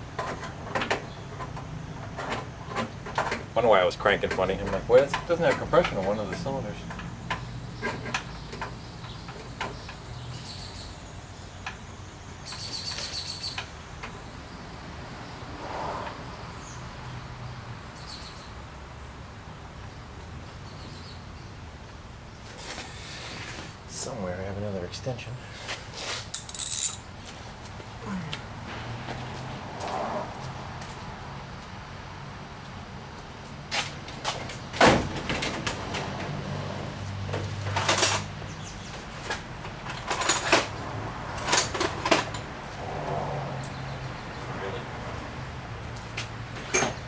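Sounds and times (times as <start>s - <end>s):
hand tools clattering: 4.1s - 10.0s, 26.0s - 27.2s, 37.4s - 38.4s, 39.2s - 42.5s.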